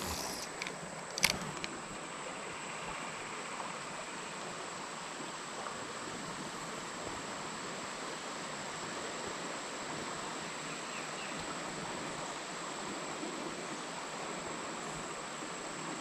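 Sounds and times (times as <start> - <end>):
creek water flowing: 0.0 - 16.0.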